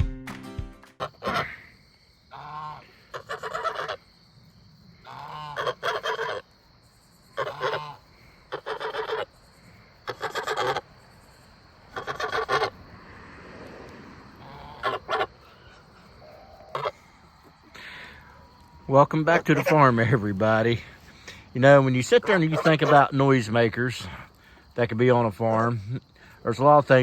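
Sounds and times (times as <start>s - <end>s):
goose honking: 1.0s - 1.7s, 2.3s - 4.1s, 5.0s - 6.5s, 7.3s - 9.4s, 10.0s - 10.9s, 11.8s - 12.9s, 14.3s - 24.0s.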